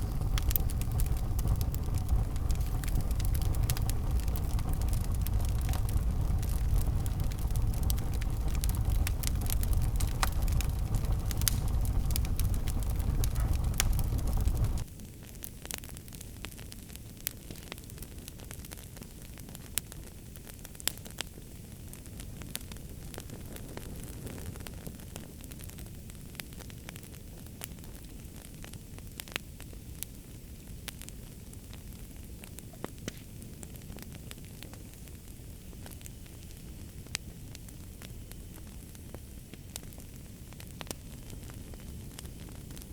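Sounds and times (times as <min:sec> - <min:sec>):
low rumble: 0:00.0 - 0:14.8
faint hiss: 0:00.0 - 0:16.4
low rumble of flames: 0:00.0 - 0:42.9
wood fire crackling: 0:00.0 - 0:42.9.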